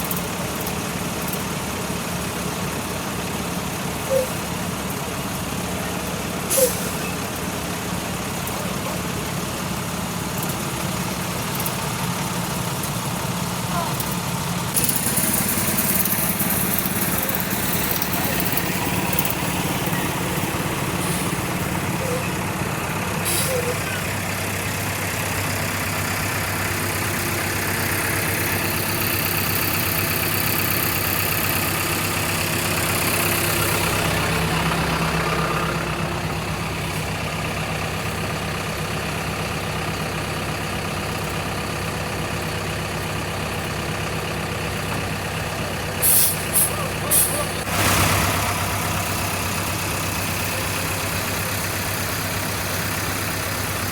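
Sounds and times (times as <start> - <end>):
diesel engine idling: 0.0 - 53.9
air hissing bursts: 6.5 - 7.0, 23.2 - 23.8, 46.0 - 47.6.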